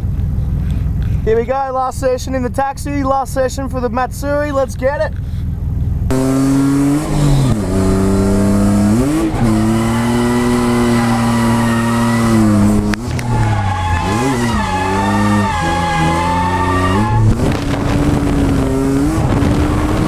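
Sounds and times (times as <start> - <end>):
car engine revving: 6.1 - 20.0
tyre squeal: 8.8 - 17.6.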